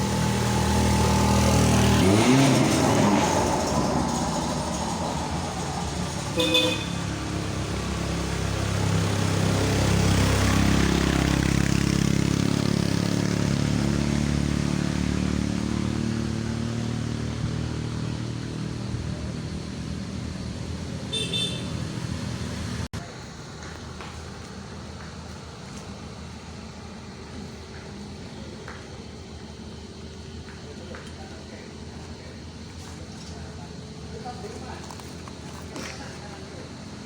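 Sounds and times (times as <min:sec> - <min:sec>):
car engine labouring uphill: 0:00.0 - 0:23.0
car horn toot: 0:06.3 - 0:07.2, 0:21.1 - 0:22.0.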